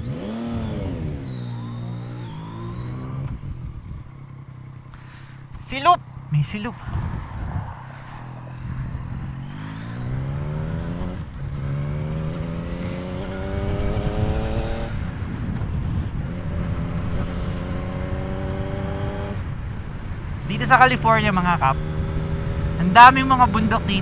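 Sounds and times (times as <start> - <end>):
motorcycle engine accelerating: 0.0 - 24.0
wind rushing over microphone: 6.3 - 23.0.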